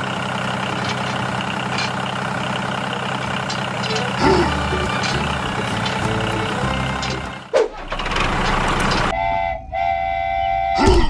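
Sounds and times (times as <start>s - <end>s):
vehicle engine running: 0.0s - 9.1s
car horn honking: 3.9s - 7.5s, 8.9s - 11.0s.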